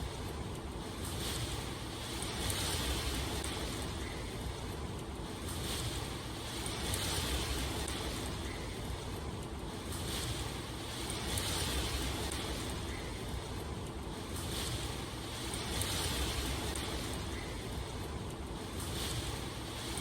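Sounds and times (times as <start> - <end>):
wind: 0.0 - 20.0
rushing water: 5.3 - 9.0, 14.3 - 17.9.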